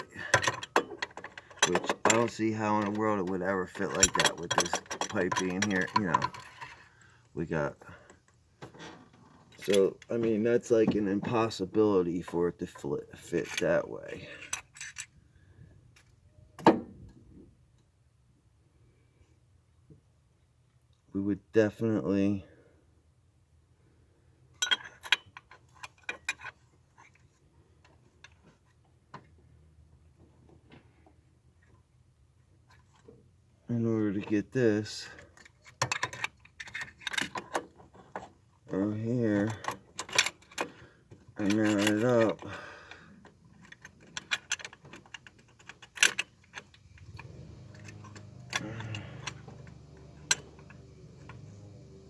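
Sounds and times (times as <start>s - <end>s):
metal parts and tools clinking: 0.0s - 6.9s, 13.4s - 15.2s, 24.6s - 28.7s, 34.9s - 52.0s.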